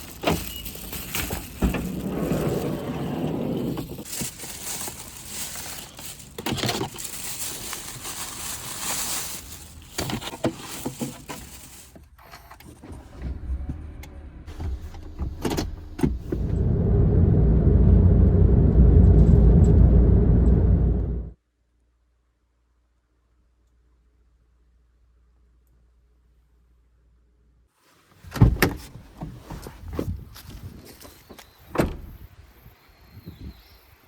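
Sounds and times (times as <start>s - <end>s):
rustling: 0.0s - 13.6s, 27.8s - 31.6s
van engine rumbling: 0.0s - 21.4s.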